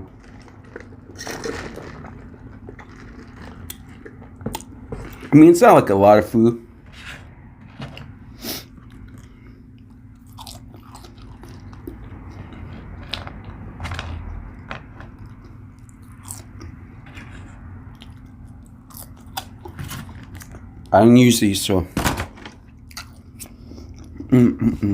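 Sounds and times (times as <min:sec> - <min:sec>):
person chewing food: 0:00.0 - 0:05.3, 0:08.6 - 0:13.7, 0:14.6 - 0:20.7, 0:22.9 - 0:24.3
low steady hum: 0:00.0 - 0:24.9.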